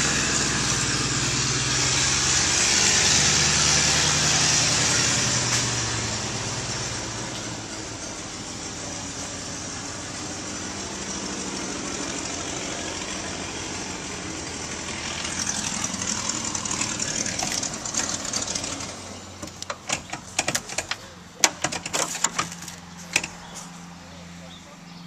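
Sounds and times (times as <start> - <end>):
engine running: 0.0 - 25.0
sharp clicks and knocks: 17.3 - 23.8.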